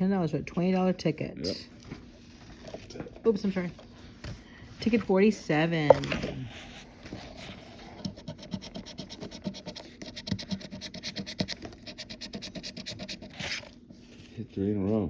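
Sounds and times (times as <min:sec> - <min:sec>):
scratching lottery ticket: 0:04.8 - 0:14.3.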